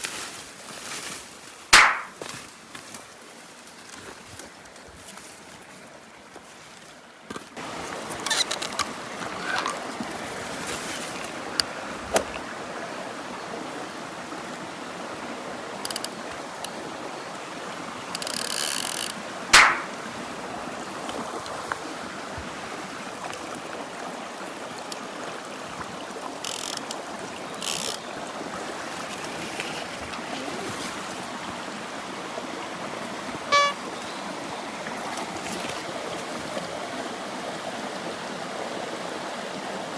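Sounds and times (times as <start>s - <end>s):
stream water running: 0.0s - 39.9s
sharp knocks and rustles: 1.8s - 2.4s, 19.6s - 20.0s
short honk-like tone: 33.5s - 33.8s.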